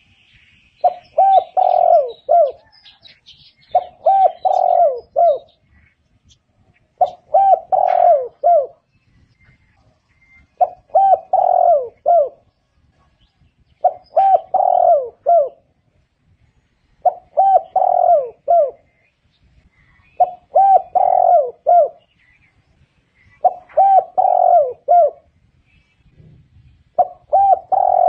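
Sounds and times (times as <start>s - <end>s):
dove cooing: 0.8s - 5.8s, 7.0s - 8.9s, 10.2s - 12.5s, 13.2s - 15.7s, 17.0s - 19.0s, 19.8s - 22.2s, 23.2s - 25.3s, 26.9s - 28.0s.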